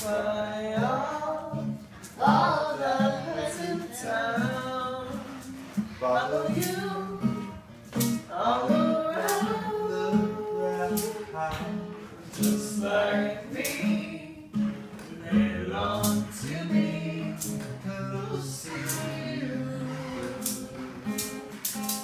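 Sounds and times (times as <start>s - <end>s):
acoustic guitar: 0.0s - 22.0s
person singing pop ballad: 8.2s - 14.7s, 15.3s - 21.4s.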